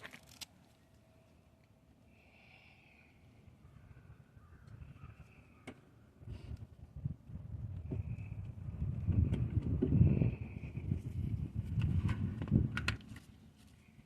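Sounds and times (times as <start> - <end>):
faint drawn-out bird calls: 0.7 - 6.5.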